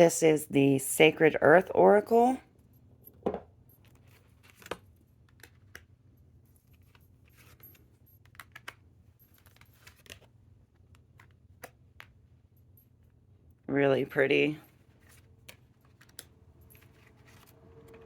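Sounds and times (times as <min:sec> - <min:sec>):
cards sliding and tapping: 0:09.4 - 0:12.2.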